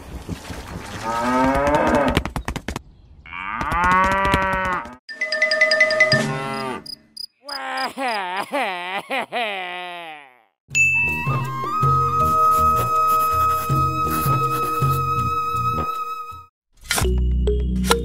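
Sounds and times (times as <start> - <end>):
cattle mooing: 6.2 - 6.9.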